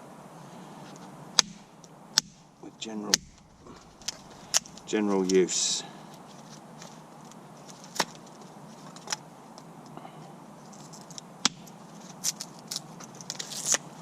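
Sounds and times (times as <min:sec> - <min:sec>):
knife carving wood: 0:01.4 - 0:04.9.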